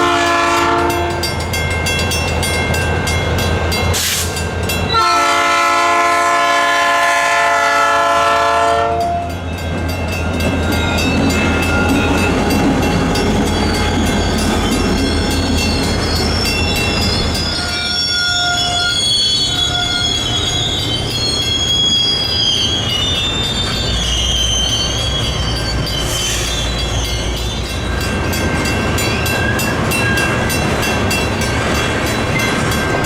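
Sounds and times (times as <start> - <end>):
locomotive horn blast: 0.0 - 1.3, 4.9 - 9.3
train wheels rolling on rails: 0.0 - 33.0
faint high squeal: 15.2 - 27.8.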